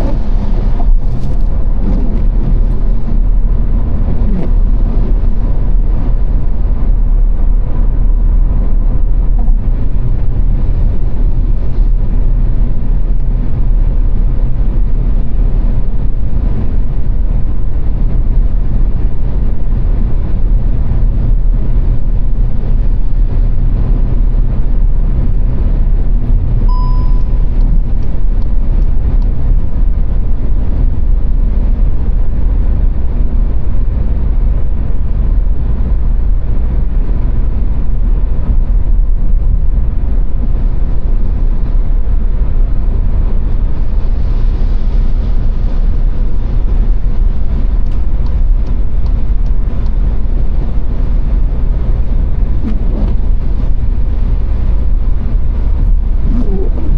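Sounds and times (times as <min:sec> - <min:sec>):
car road and engine rumble: 0:00.0 - 0:56.9
short beep: 0:26.7 - 0:27.6.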